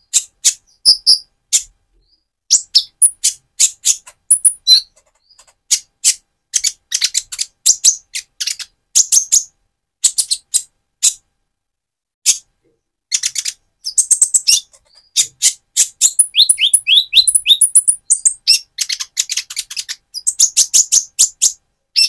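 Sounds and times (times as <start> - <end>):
bird calling in sharp high chips: 2.5 - 9.3, 13.2 - 22.0.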